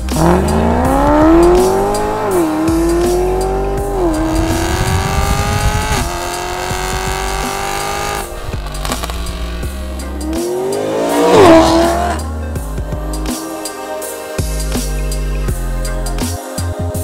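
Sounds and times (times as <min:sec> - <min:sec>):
car engine accelerating hard: 0:00.0 - 0:12.5.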